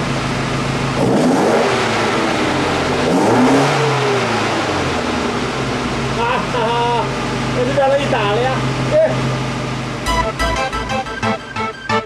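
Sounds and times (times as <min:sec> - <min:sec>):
car engine revving: 0:01.0 - 0:04.9.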